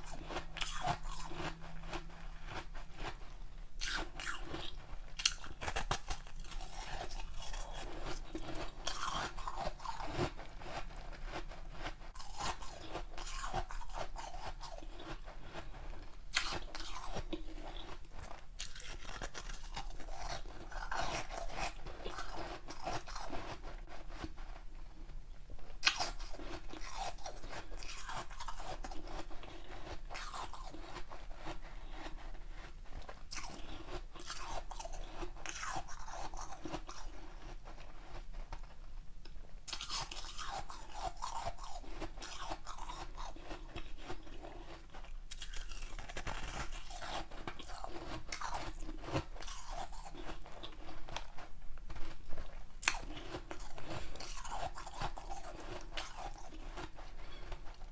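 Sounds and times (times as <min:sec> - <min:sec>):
chewing ice: 0:00.0 - 0:24.3, 0:25.7 - 0:38.7, 0:39.7 - 0:57.9.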